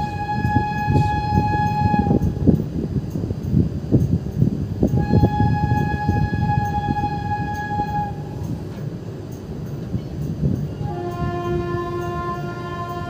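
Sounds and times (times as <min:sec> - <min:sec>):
train horn blast: 0:00.0 - 0:02.5, 0:04.9 - 0:08.5, 0:10.8 - 0:13.0
freight train wagons rumbling: 0:00.0 - 0:13.0.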